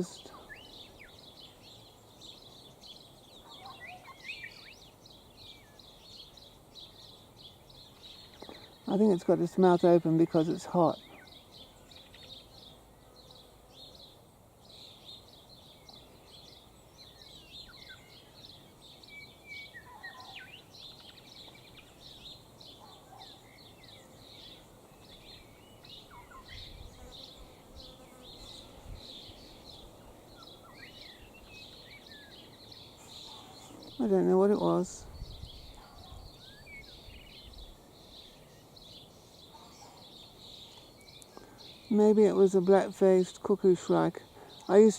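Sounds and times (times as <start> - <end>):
birds chirping: 0.0 - 44.9
lower bird calls: 11.0 - 42.0.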